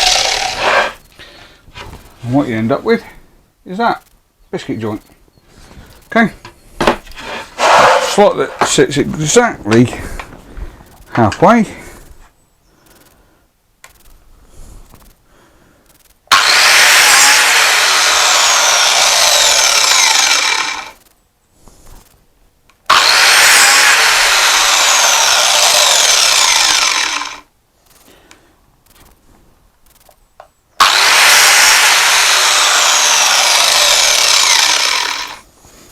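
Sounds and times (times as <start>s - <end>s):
biscuit jointer cutting wood: 0.0s - 1.0s, 7.2s - 8.7s, 16.3s - 21.0s, 22.9s - 27.4s, 30.8s - 35.4s.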